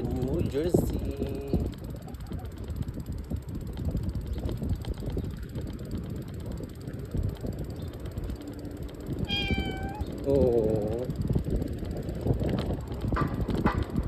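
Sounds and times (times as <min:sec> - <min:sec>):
bike rattling over rough ground: 0:00.0 - 0:14.0
wind on microphone: 0:00.0 - 0:14.0
cat meowing: 0:09.2 - 0:10.2.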